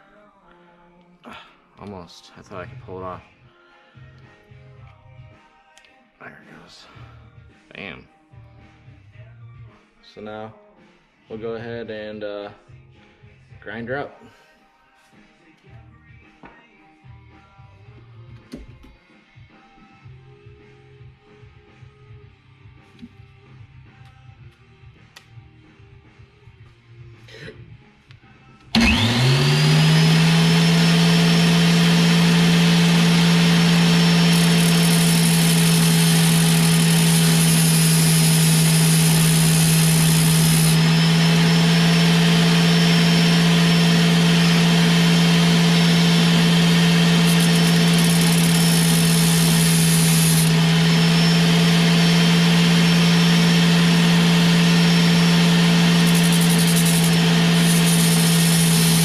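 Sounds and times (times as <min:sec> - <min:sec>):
electric grinder running: 0:28.8 - 0:59.0
grinder hiss on metal: 0:34.3 - 0:40.8, 0:47.2 - 0:50.5, 0:56.0 - 0:59.0.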